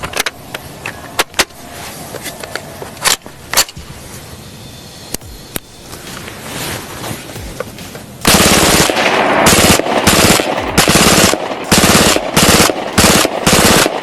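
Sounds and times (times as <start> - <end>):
submachine gun automatic bursts: 7.6 - 14.0.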